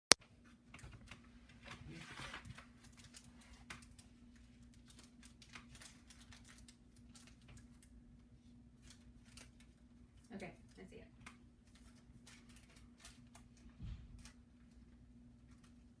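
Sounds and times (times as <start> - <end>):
steady low hum: 0.2 - 16.0.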